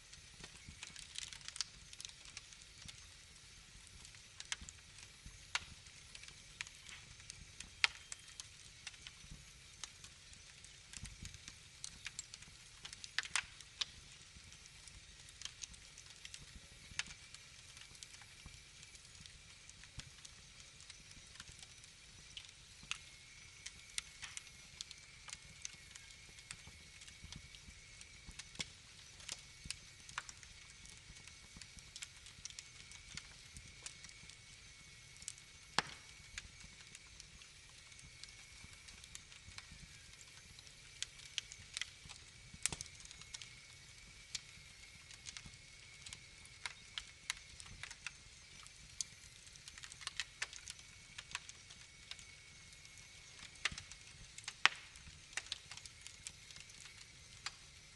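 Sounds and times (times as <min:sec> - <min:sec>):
wood fire crackling: 0:00.0 - 0:57.9.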